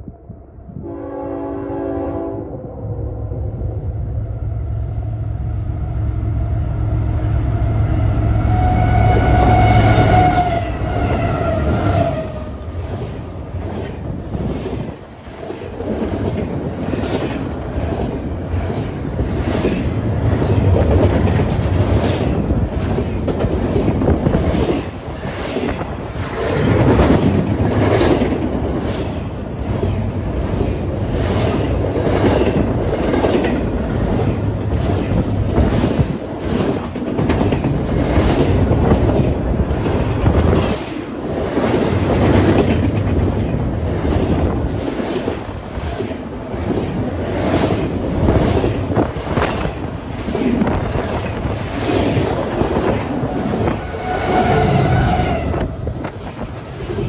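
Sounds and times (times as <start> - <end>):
freight train cars rumbling: 0.0 - 57.0
diesel locomotive engine: 0.7 - 57.0
wheels clicking over rail joints: 13.0 - 54.4.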